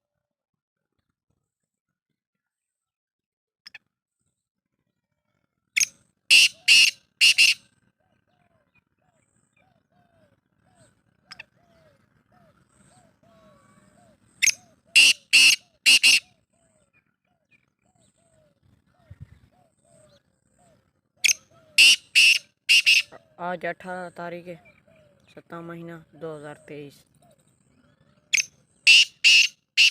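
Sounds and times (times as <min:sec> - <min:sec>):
bird harsh grating calls: 0:05.8 - 0:07.6, 0:13.1 - 0:16.3, 0:21.2 - 0:23.4, 0:27.9 - 0:29.9.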